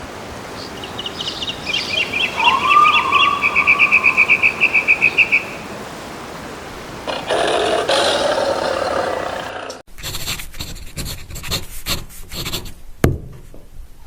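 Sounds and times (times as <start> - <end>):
bird chirping and trilling: 0.5 - 5.8
low whistled bird note: 1.2 - 5.6.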